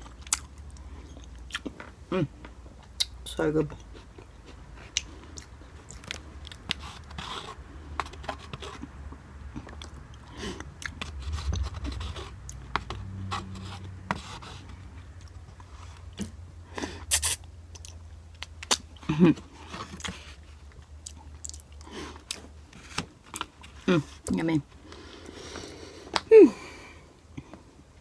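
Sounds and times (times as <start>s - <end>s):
person chewing noodles: 0.0s - 1.9s, 3.8s - 23.9s.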